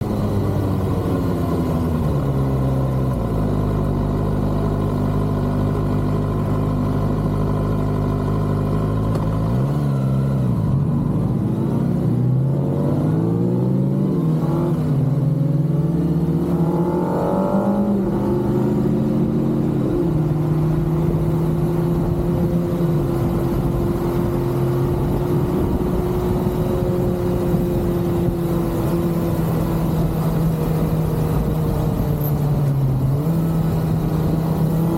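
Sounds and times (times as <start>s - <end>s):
motorcycle engine revving: 6.9s - 34.9s.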